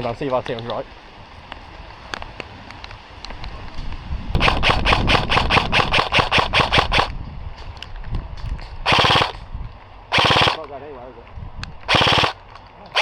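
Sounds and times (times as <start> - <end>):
airsoft gun rapid firing: 4.4 - 7.1, 8.9 - 9.4, 10.1 - 10.7, 11.9 - 12.4
faint distant shots: 4.4 - 7.2, 8.9 - 9.4, 10.1 - 10.8, 11.9 - 13.0.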